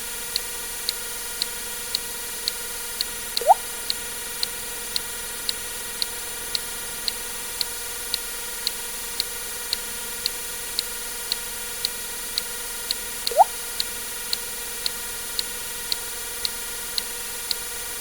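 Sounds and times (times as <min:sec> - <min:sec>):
short clicks: 0:03.4 - 0:03.7, 0:13.3 - 0:13.5
water drip plink: 0:03.4 - 0:03.7, 0:13.3 - 0:13.6.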